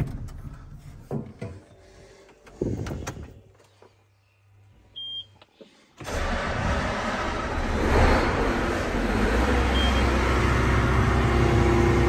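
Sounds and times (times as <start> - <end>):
knocks and thumps in tractor cab: 0.0 - 1.7, 2.5 - 3.5.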